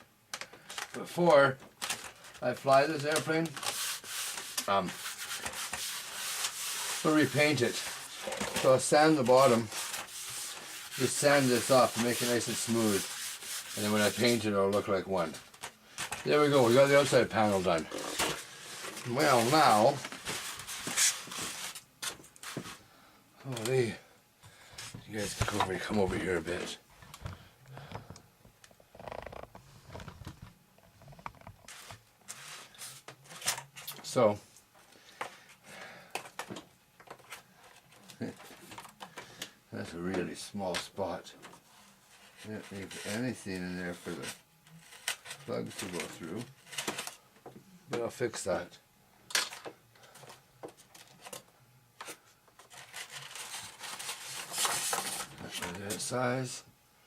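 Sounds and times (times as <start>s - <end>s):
scratchy scraping: 2.7s - 15.5s, 16.2s - 21.8s, 42.1s - 47.0s.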